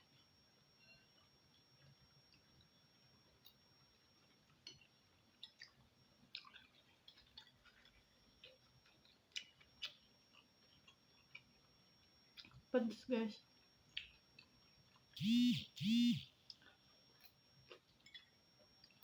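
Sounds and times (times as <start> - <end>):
chewing: 4.2 - 12.7, 13.6 - 15.2, 16.4 - 19.0.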